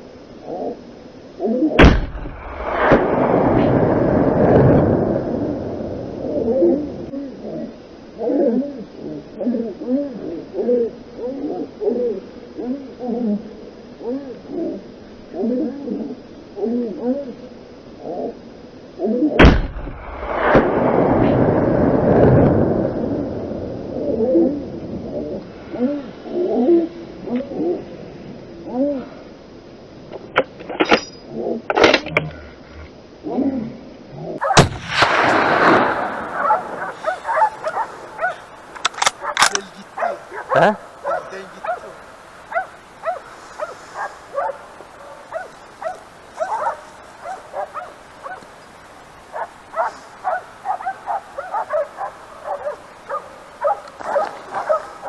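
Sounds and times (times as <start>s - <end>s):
brief crackling burst: 1.8s - 5.0s, 19.4s - 22.5s, 34.4s - 42.5s
dogs barking: 34.4s - 34.7s, 36.0s - 48.6s, 49.2s - 55.0s
sharp clicks: 38.7s - 40.2s.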